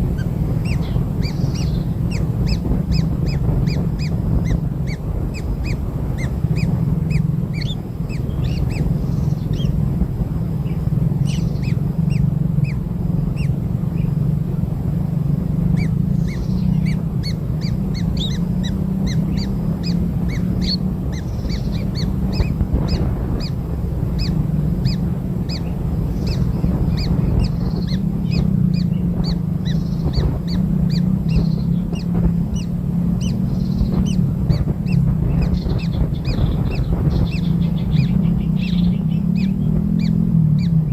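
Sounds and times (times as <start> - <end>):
steady low hum: 0.0 - 40.9
high bird chirps: 10.6 - 14.1, 15.7 - 23.6.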